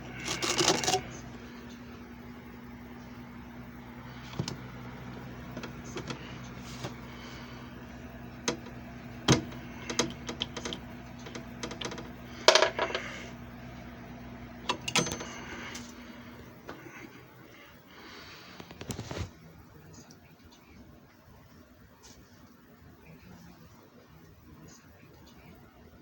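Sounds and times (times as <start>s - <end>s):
machine motor humming: 0.0s - 18.2s.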